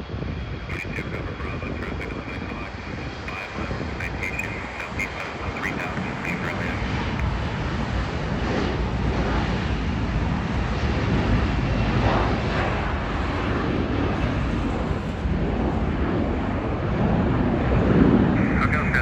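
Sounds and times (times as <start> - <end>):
jet engine rushing: 0.0 - 19.0.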